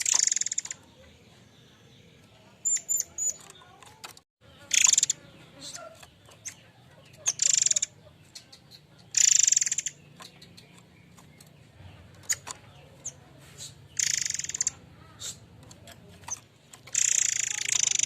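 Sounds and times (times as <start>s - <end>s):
bird harsh rapid trills: 0.0s - 1.0s, 4.6s - 18.0s
bird sharp chips: 0.0s - 1.1s, 2.1s - 18.0s.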